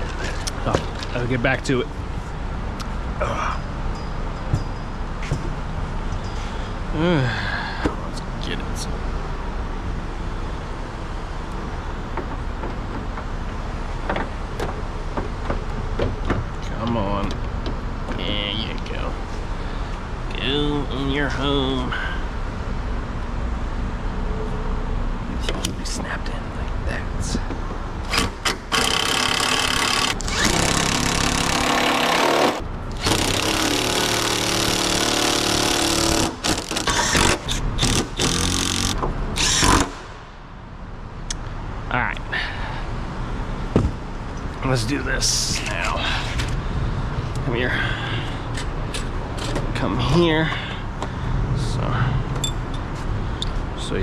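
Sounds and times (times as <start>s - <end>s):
power tool running: 28.0s - 40.1s.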